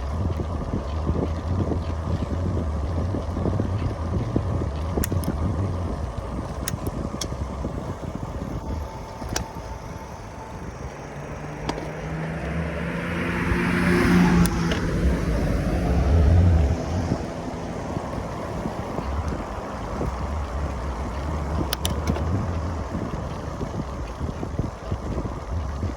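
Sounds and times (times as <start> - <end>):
wind buffeting microphone: 0.0 - 25.9
car passing: 5.9 - 21.8.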